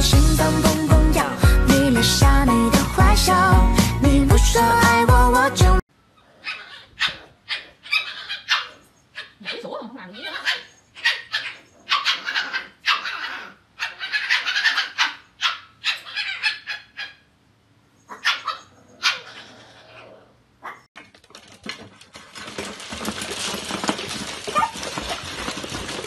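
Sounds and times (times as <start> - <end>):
puppies barking and yipping: 6.2 - 17.3, 18.1 - 20.0, 23.4 - 26.0.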